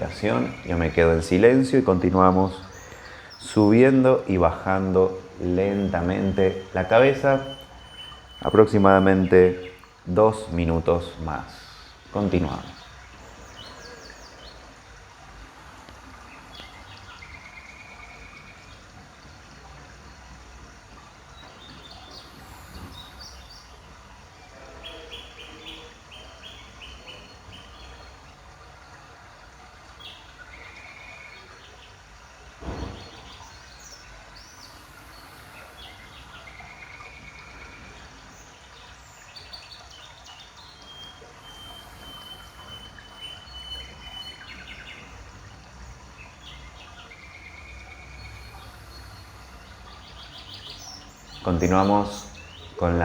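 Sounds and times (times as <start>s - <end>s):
birds chirping and calling: 0.0s - 53.0s
sharp thump: 32.6s - 33.2s.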